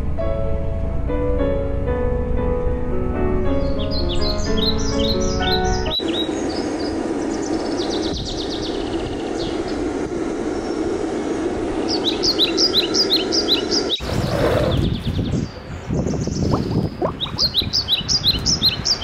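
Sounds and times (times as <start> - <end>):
small birds chirping: 3.6 - 19.0
steady rushing noise: 3.9 - 19.0
broad loud noise: 5.1 - 19.0.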